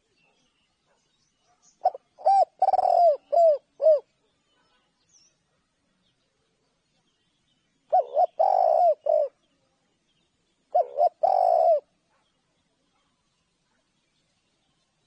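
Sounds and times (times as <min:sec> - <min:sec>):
dove cooing: 0:01.8 - 0:04.2, 0:07.9 - 0:09.4, 0:10.7 - 0:12.0.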